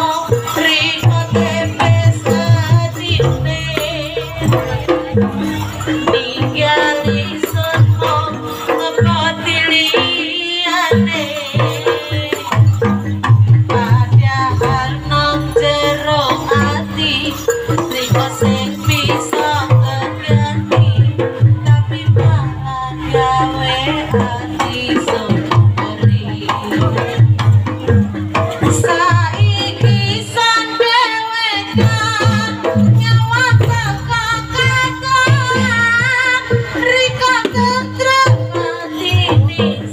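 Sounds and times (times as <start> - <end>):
hand drums beating: 0.0 - 39.9
person singing ornamented vocals: 0.0 - 39.9.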